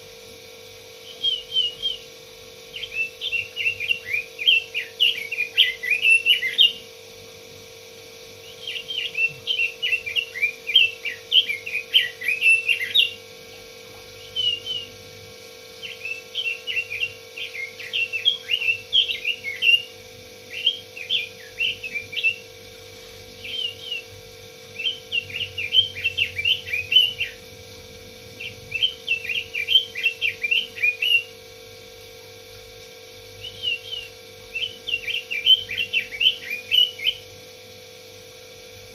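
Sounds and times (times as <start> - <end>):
steady hum: 0.0 - 38.9
bird warbling song: 1.0 - 2.1, 2.7 - 6.9, 8.4 - 13.3, 14.1 - 15.0, 15.7 - 27.5, 28.4 - 31.4, 33.4 - 37.3.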